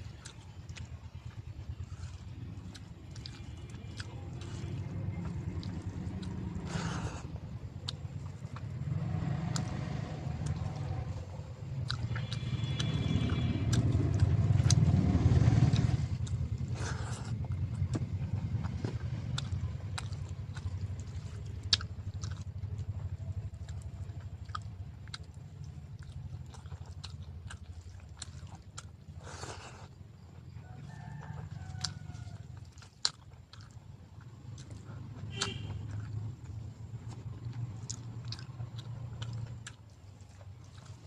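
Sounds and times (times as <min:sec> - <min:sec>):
low rumble: 0:00.0 - 0:30.6
person chewing food: 0:00.0 - 0:41.0
wet mouth clicks: 0:11.7 - 0:14.9.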